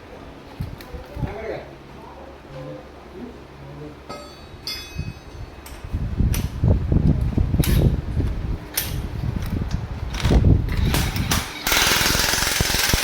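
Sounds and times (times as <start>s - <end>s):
sharp cracks: 10.1s - 13.0s.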